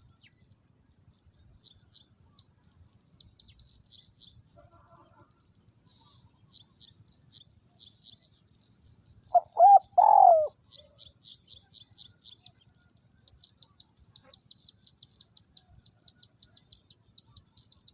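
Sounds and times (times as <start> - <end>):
dove cooing: 9.3 - 10.6.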